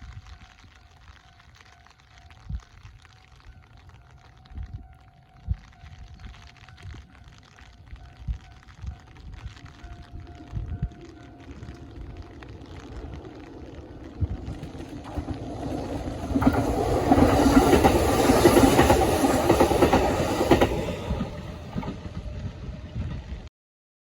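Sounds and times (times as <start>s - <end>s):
electric train passing: 8.0s - 23.5s.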